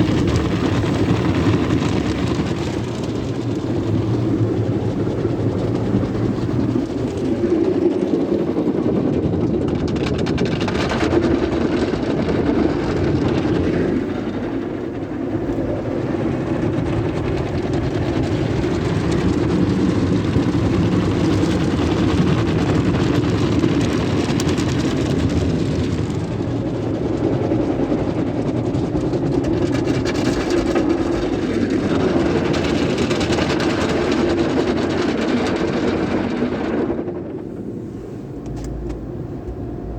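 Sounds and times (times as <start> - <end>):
car wash machinery hum: 0.0 - 39.9.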